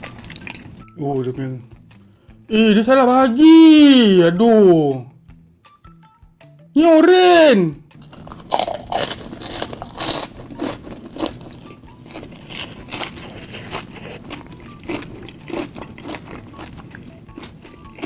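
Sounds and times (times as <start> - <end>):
crunching and chewing crispy food: 0.0 - 0.8, 8.0 - 18.0.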